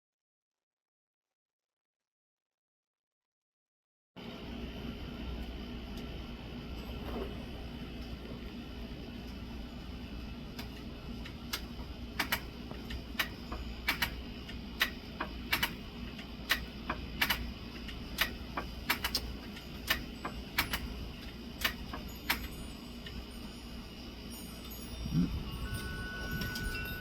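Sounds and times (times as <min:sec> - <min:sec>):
steady low background noise: 0:04.2 - 0:27.0
sharp clicks: 0:10.6 - 0:22.5.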